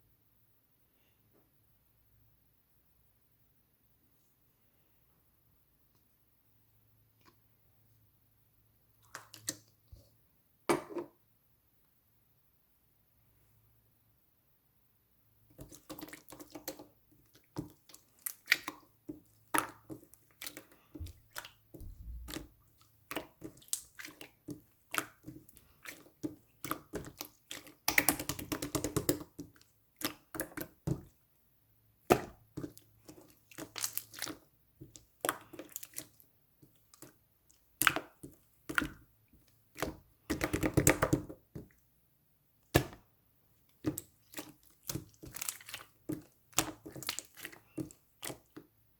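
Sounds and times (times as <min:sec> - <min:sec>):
rapid crackling of slime: 0:15.6 - 0:31.2, 0:32.0 - 0:41.7, 0:43.7 - 0:48.6
slime squished by hand: 0:19.4 - 0:31.2, 0:43.8 - 0:48.6.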